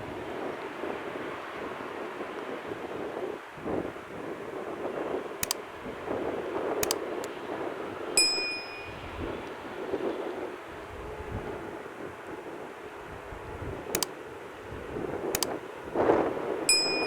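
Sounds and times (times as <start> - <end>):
sharp clicks: 5.4 - 5.6, 6.8 - 7.4, 14.0 - 14.2, 15.4 - 15.6
short metallic ding: 8.2 - 9.1, 16.7 - 17.0.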